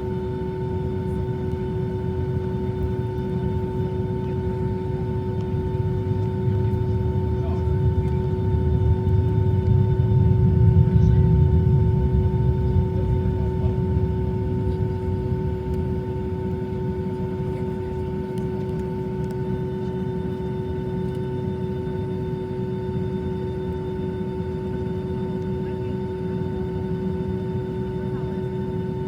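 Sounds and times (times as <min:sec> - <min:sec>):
airplane engines rumbling and whining: 0:00.0 - 0:29.0.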